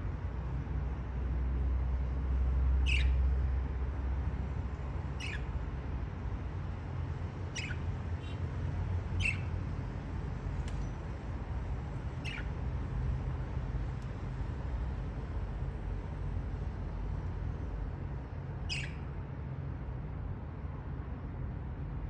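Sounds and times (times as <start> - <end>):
steady low hum: 0.0 - 22.0
budgerigar chirps: 2.8 - 3.2, 5.2 - 5.5, 7.5 - 8.4, 9.2 - 9.6, 12.2 - 12.6, 18.7 - 19.0.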